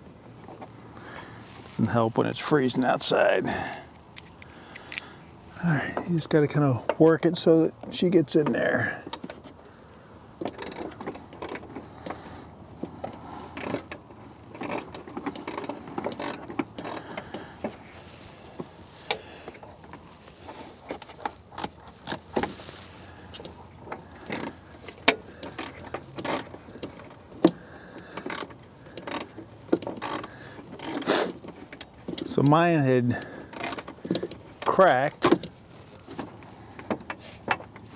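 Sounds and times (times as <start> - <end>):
plastic part clicking and rattling: 4.0 - 5.1, 10.4 - 12.2, 12.8 - 17.8, 23.3 - 32.3, 33.4 - 35.5.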